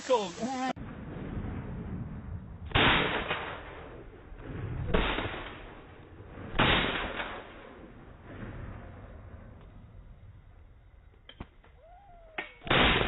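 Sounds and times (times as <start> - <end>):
gunshots: 2.7 - 8.9, 12.6 - 13.0.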